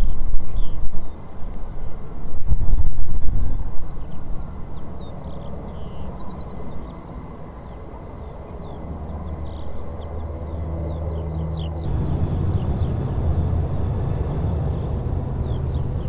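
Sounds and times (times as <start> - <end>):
jet aircraft rumble: 9.1 - 16.0.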